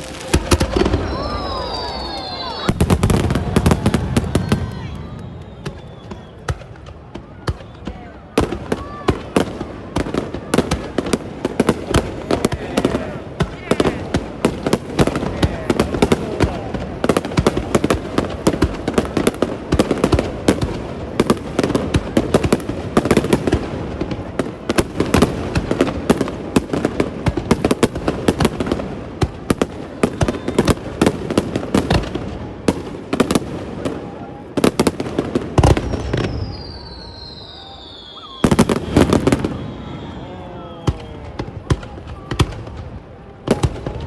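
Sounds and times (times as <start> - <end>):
fireworks bangs and crackle: 0.0 - 44.0
high falling whistle: 0.8 - 3.1, 35.8 - 41.5.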